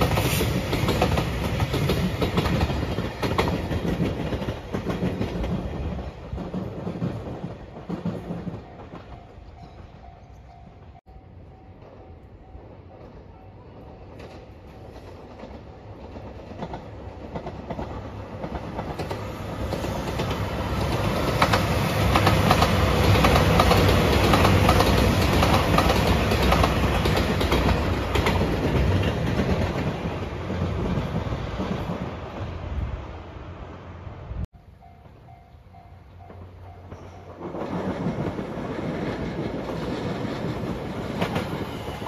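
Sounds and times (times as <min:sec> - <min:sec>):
train wheels clattering over rail joints: 0:00.0 - 0:09.2, 0:14.1 - 0:32.0.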